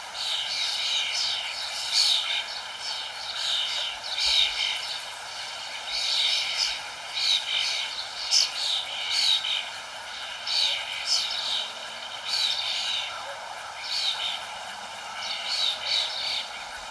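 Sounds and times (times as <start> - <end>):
songbirds chirping: 0.0 - 16.9
steady rushing hiss: 0.0 - 16.9.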